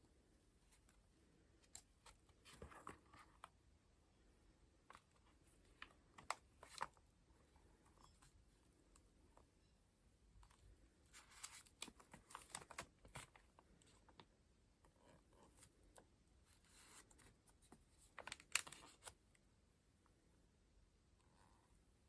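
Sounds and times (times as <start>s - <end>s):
paper pages rustling: 5.7s - 7.0s, 11.1s - 14.2s, 16.5s - 19.2s.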